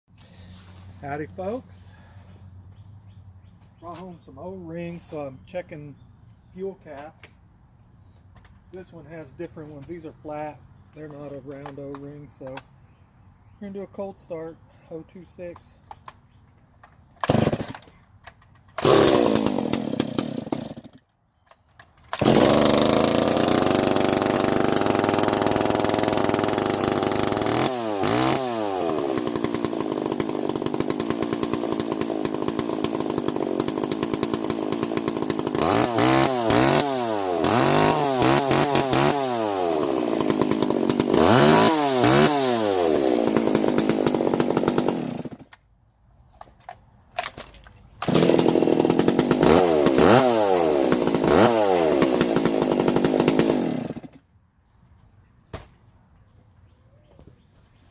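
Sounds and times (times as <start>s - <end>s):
chainsaw starting and revving: 0.2s - 2.3s, 17.2s - 18.0s, 18.7s - 21.1s, 22.1s - 45.6s, 47.2s - 54.2s.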